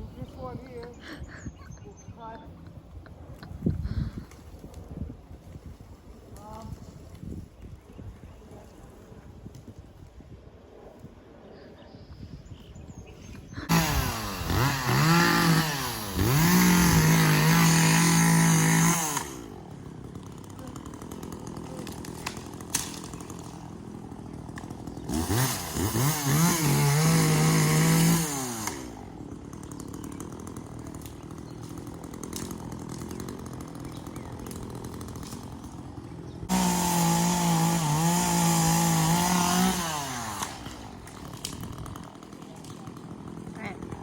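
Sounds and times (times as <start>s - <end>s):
chainsaw idling and revving: 13.6s - 44.0s.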